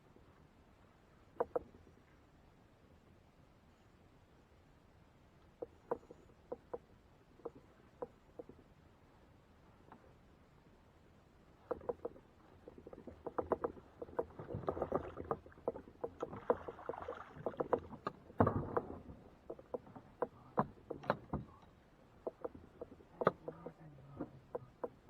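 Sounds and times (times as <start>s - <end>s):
knocks and clatter on kayak hull: 1.3s - 1.9s, 5.6s - 8.7s, 11.6s - 25.0s.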